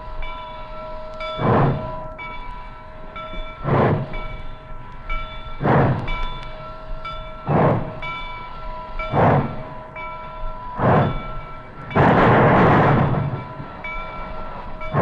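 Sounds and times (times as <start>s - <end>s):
steam locomotive chuffing: 0.0s - 15.0s
high ringing tone: 13.1s - 15.0s.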